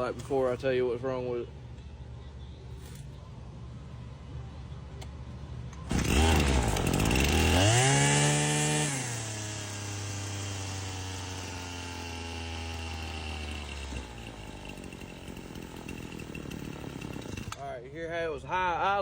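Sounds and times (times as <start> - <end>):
string trimmer engine idling: 5.8 - 17.6.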